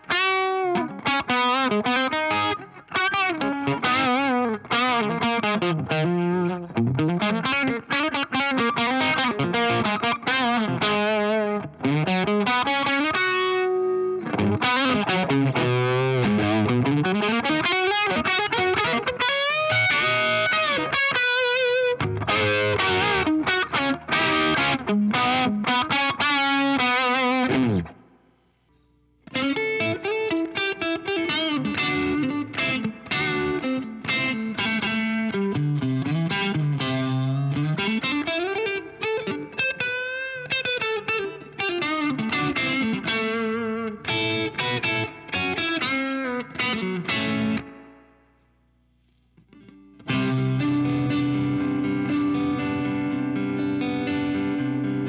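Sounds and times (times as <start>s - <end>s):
overdriven electric guitar riffs: 0.0s - 55.0s.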